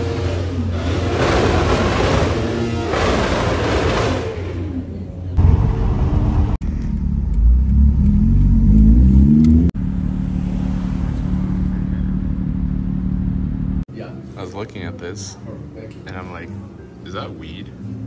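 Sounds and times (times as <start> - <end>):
car engine accelerating: 0.0 - 13.9.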